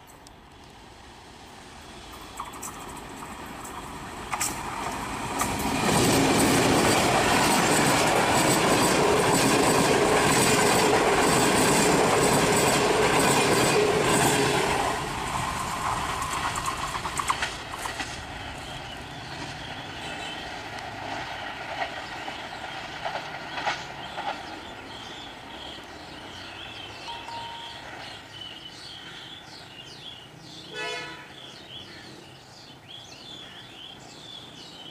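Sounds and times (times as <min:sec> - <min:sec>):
locomotive engine and wheels: 0:00.0 - 0:28.7
wheels clicking over rail joints: 0:02.1 - 0:19.6
train horn blast: 0:30.7 - 0:31.4.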